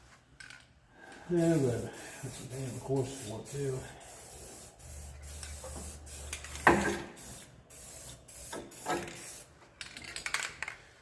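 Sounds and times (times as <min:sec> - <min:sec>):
spray paint hissing: 0:01.4 - 0:09.5.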